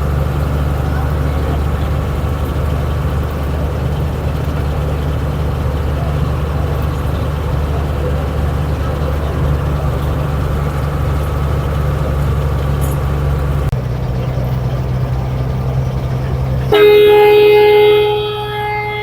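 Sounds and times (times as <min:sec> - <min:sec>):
bus engine humming: 0:00.0 - 0:19.0
vehicle horn held: 0:16.7 - 0:19.0.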